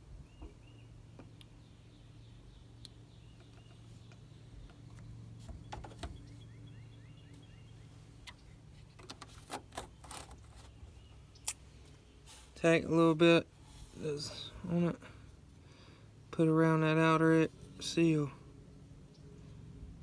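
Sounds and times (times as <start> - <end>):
faint birds chirping: 0.0 - 20.0
low steady hum: 0.0 - 20.0
handling clicks and knocks: 3.4 - 6.4, 8.2 - 10.8.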